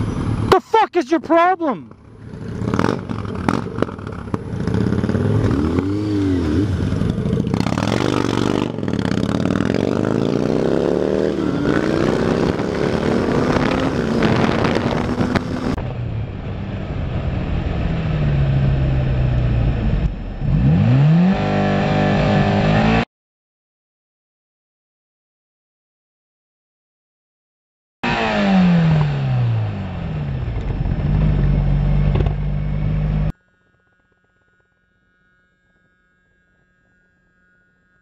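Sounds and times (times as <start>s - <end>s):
road and traffic noise: 0.0s - 23.0s, 28.1s - 33.4s
motorcycle engine revving: 1.8s - 23.1s, 28.0s - 33.4s.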